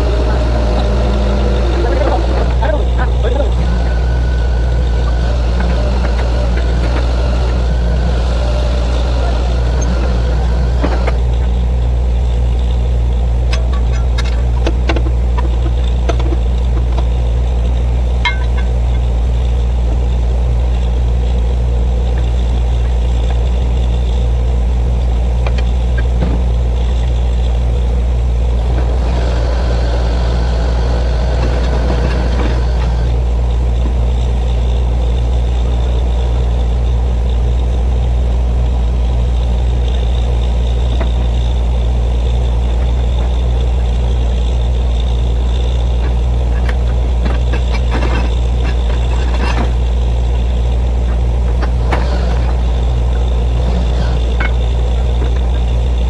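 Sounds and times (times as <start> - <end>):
drilling rig engine drone: 0.0 - 56.0.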